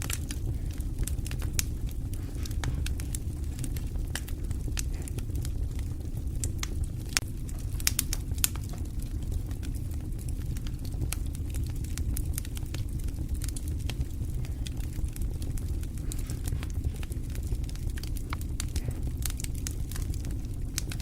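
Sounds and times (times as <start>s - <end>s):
flames rumbling: 0.0s - 21.0s
wood fire crackling: 0.0s - 21.0s.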